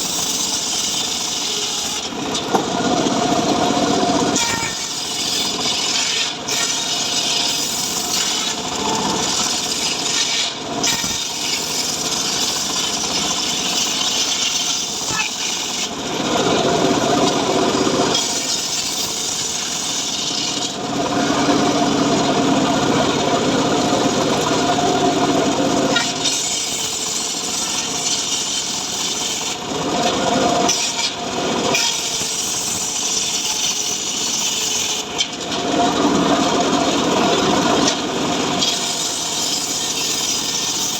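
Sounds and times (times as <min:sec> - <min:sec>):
engine-driven saw cutting wood: 0:00.0 - 0:40.9.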